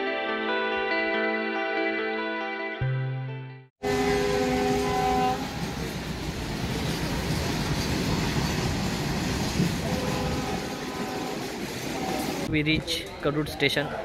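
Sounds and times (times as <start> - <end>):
train horn: 3.8 - 5.8, 9.8 - 12.5
freight train rumbling past: 3.8 - 12.6.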